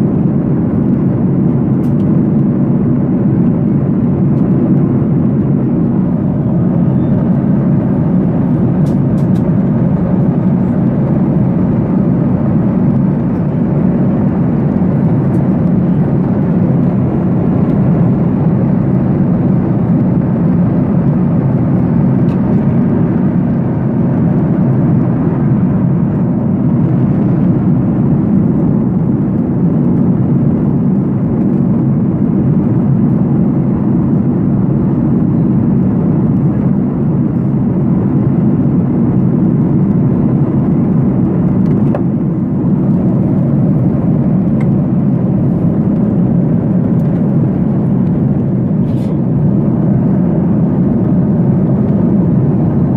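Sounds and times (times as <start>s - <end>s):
airliner cabin engine drone: 0.0s - 52.9s.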